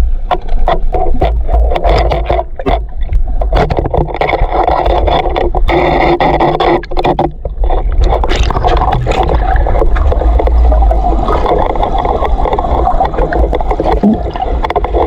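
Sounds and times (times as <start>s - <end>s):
rushing river water: 6.5s - 15.0s.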